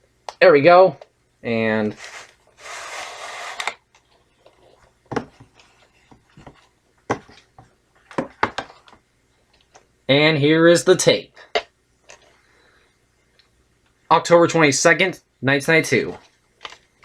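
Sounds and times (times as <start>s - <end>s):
cassette scraping out of cardboard box: 1.9s - 3.8s.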